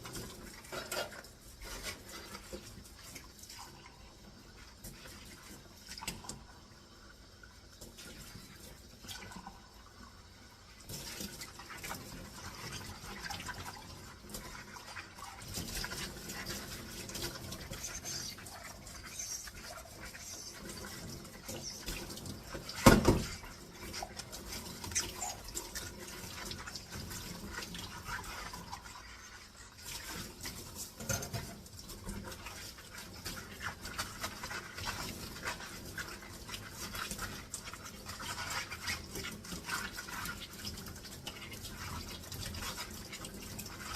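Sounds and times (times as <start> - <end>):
dish scrubbing: 0.0 - 6.5, 10.7 - 43.9
water splashing: 10.8 - 43.9.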